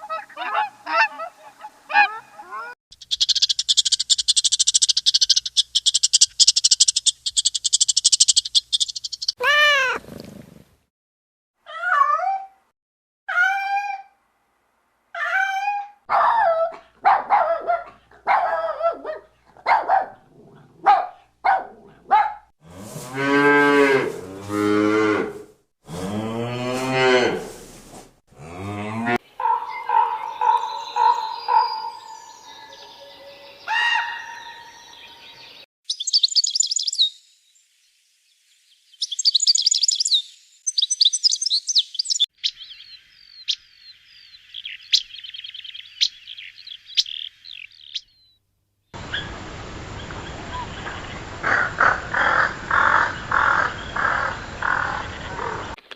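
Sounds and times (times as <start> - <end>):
high bird chirps: 2.9 - 9.4, 29.4 - 37.4, 38.8 - 48.4.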